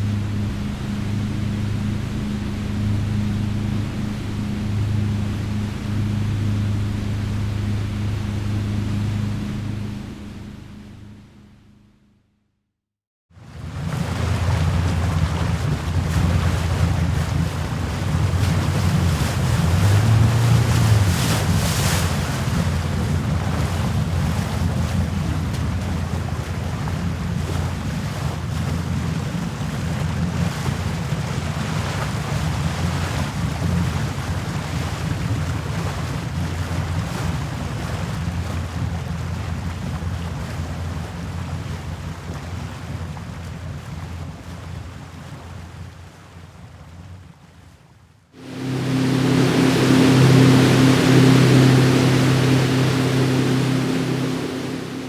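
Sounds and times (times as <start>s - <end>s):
sea waves washing: 13.4s - 47.2s, 48.4s - 55.0s
wind buffeting microphone: 13.5s - 46.7s.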